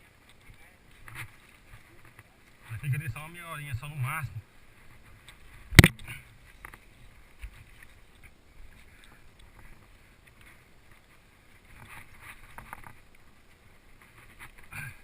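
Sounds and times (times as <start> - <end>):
bike clicks and rattles: 5.2 - 13.4.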